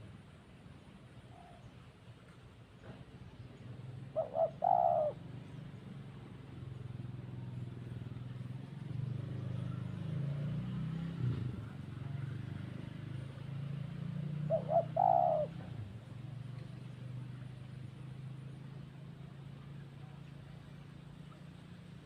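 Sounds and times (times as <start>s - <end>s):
dove calling: 2.9s - 7.0s, 14.2s - 18.1s.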